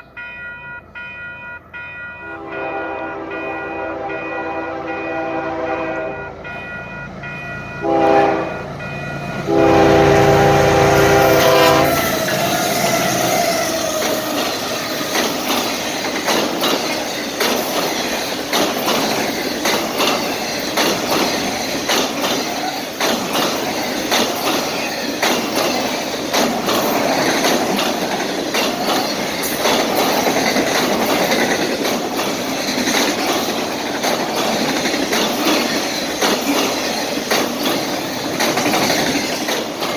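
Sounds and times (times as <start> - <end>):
train wheels rumbling on rails: 0.0 - 39.9
wheels clicking over rail joints: 0.0 - 39.9
train horn blasts: 2.0 - 7.0, 7.6 - 13.9.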